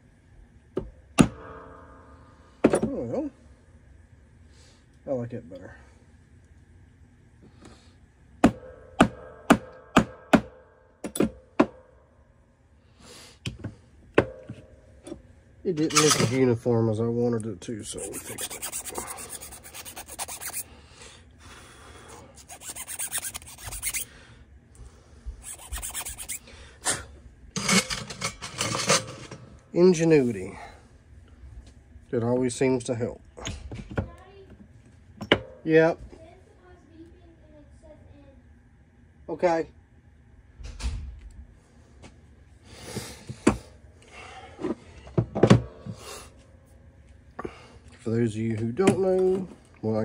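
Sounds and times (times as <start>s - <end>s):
tools knocking and clattering: 15.8s - 16.4s, 27.6s - 29.4s
hand file rasping: 17.9s - 20.7s, 22.4s - 24.1s, 25.4s - 26.4s
hiss-like scrape: 17.9s - 20.7s, 22.1s - 24.2s, 25.4s - 27.1s.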